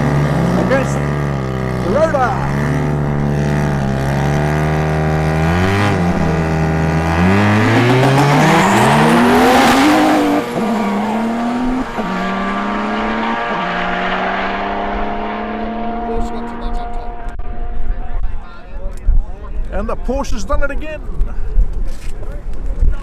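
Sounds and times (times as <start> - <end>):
racing car engines revving: 0.0 - 18.2.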